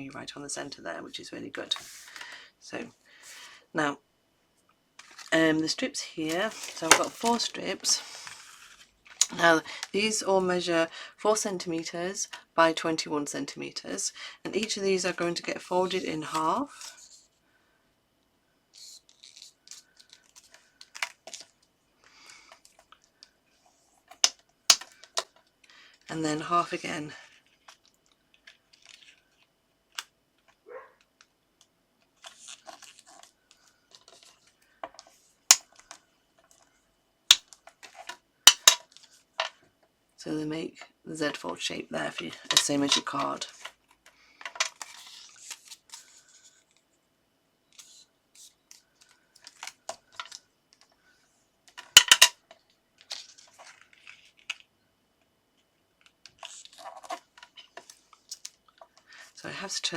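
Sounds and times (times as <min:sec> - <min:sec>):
card rustling and scraping: 0:01.7 - 0:02.3, 0:05.0 - 0:05.4, 0:06.2 - 0:09.3, 0:18.8 - 0:21.5, 0:32.2 - 0:35.8, 0:44.5 - 0:46.8, 0:47.7 - 0:50.4, 0:53.1 - 0:54.6, 0:56.4 - 0:59.0.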